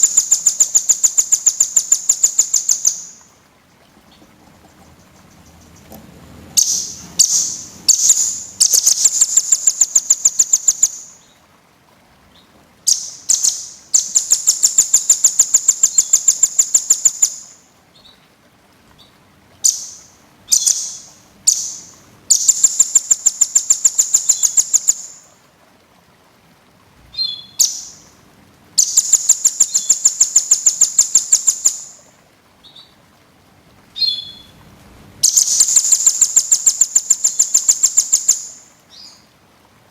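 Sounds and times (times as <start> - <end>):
songbird singing trills: 0.0 - 11.4, 12.3 - 18.3, 19.0 - 25.3, 27.1 - 28.1, 28.8 - 33.0, 34.0 - 34.6, 35.2 - 39.3.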